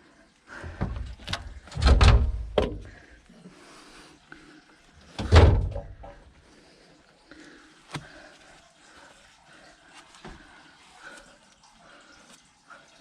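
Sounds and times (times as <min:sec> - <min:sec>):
knocks and heavy thuds: 0:00.6 - 0:03.0, 0:05.2 - 0:06.2.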